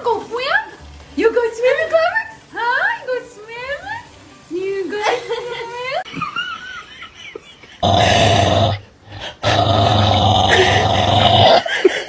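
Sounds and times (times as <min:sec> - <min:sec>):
dog growling: 0:07.8 - 0:11.7.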